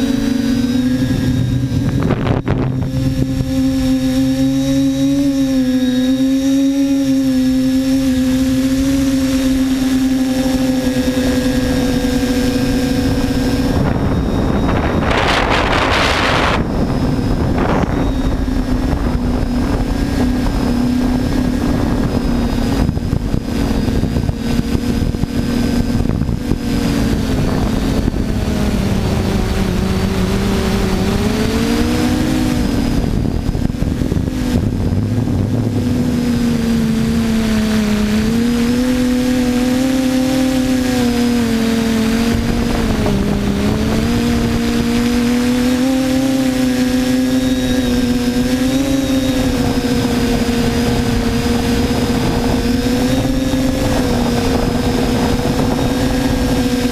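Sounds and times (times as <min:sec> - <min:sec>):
quadcopter motors whining: 0:00.0 - 0:56.9
rush of noise: 0:00.0 - 0:56.9.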